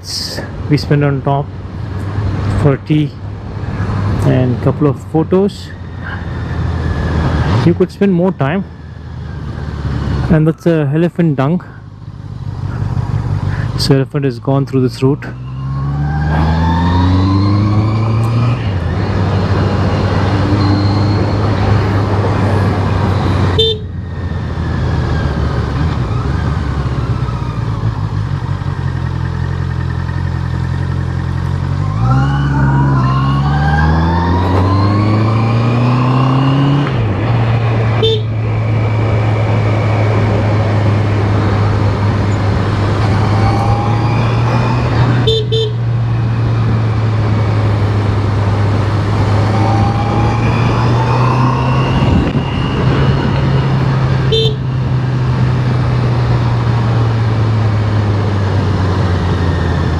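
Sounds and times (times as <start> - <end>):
motorcycle engine running: 25.5 - 31.8.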